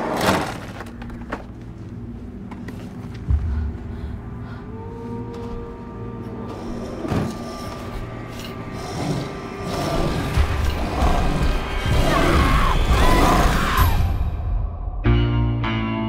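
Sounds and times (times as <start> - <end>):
dense mechanical trailer score: 3.2 - 14.8.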